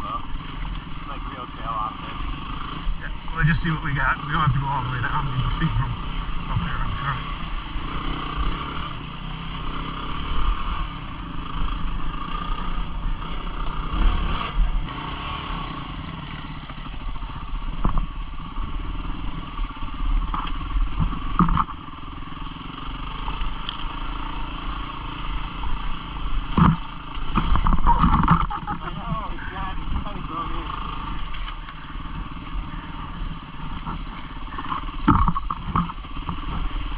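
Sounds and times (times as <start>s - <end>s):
motorcycle engine running: 0.0s - 36.9s
bike knocking and clattering: 33.8s - 36.7s.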